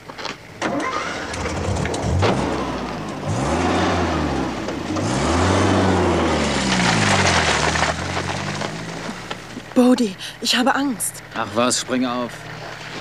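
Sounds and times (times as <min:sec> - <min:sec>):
car engine accelerating: 0:00.7 - 0:10.0.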